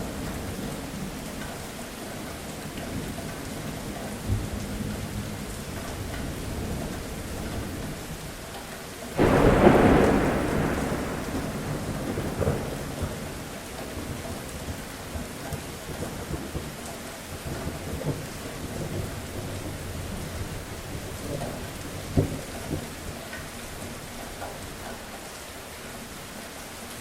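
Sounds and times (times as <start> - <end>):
steady rain falling: 0.0 - 27.0
thunder clap and rumble: 9.2 - 23.2.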